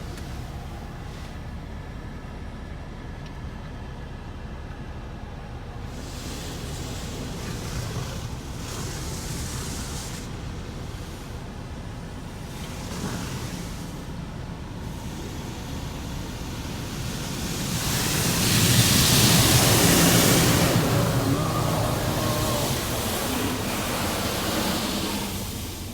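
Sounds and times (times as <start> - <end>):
car wash water spray hissing: 0.0 - 2.0, 4.9 - 25.9.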